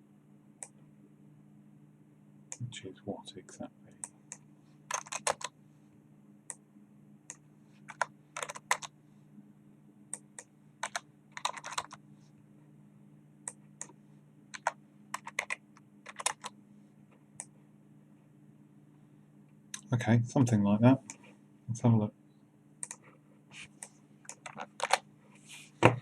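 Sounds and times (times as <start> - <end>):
steady low hum: 0.0 - 26.0
keyboard typing: 4.9 - 5.5, 7.9 - 8.9, 10.2 - 12.0, 13.5 - 16.6, 22.8 - 23.0, 23.8 - 25.0.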